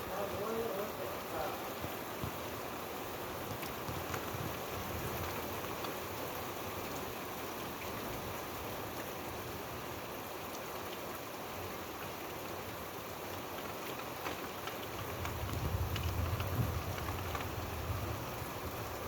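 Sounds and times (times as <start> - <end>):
steady rainfall: 0.0 - 19.0
raindrops ticking on surface: 0.1 - 19.0.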